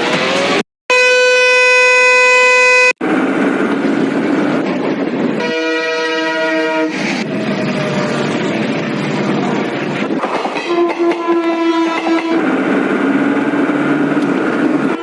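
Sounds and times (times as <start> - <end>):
rushing traffic noise: 0.0 - 15.0
single-note horn: 0.9 - 2.9
chord horn: 0.9 - 3.0.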